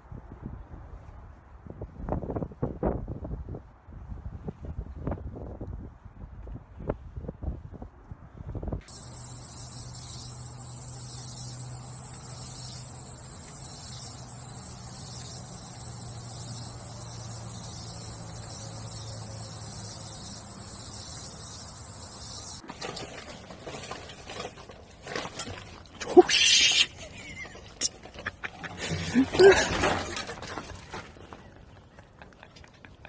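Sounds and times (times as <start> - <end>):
high-pitched insect chorus: 8.8 - 22.6
low steady hum: 8.8 - 22.6.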